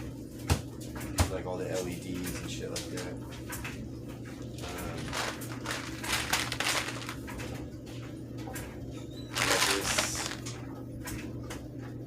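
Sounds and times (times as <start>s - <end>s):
steady low hum: 0.0s - 12.0s
packaging rustling: 4.9s - 7.4s, 9.3s - 10.5s.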